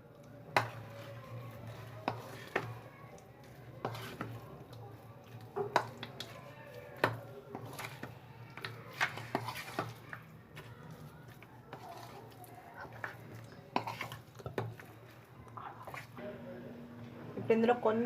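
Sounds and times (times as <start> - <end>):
spoon scraping against bowl: 3.8 - 4.4, 7.5 - 10.2, 11.7 - 14.9.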